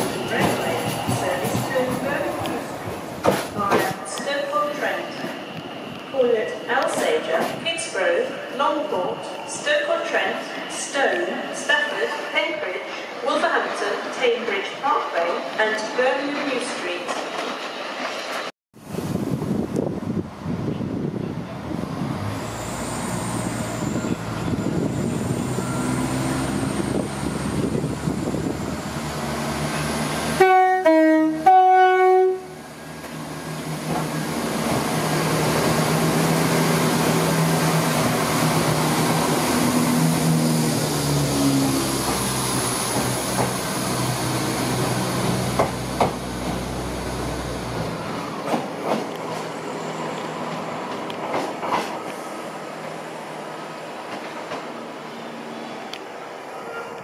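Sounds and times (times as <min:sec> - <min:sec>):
train horn blasts: 0:30.4 - 0:32.6.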